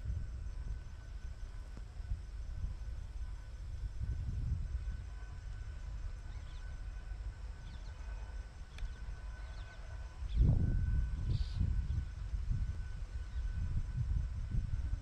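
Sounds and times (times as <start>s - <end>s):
faint steady high tone: 0.0s - 15.0s
faint bird chirps: 11.2s - 12.0s.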